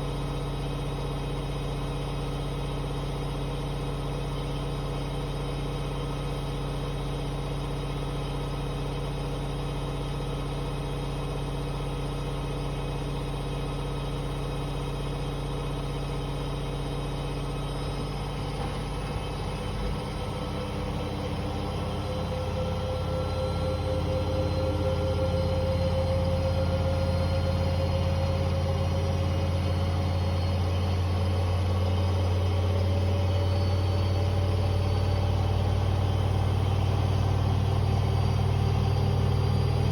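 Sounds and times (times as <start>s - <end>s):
washing machine spinning: 18.1s - 39.9s
rising whine: 19.5s - 31.4s.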